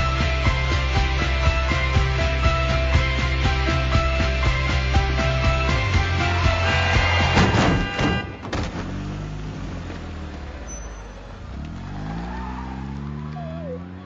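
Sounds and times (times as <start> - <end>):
music: 0.0 - 8.4
car engine accelerating: 0.2 - 8.0, 8.6 - 14.0
thump: 7.2 - 9.0.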